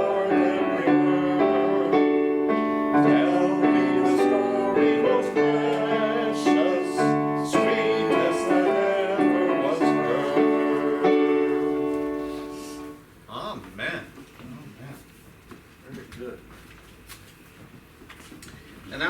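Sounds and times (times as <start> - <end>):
hymn on a keyboard: 0.0 - 13.0.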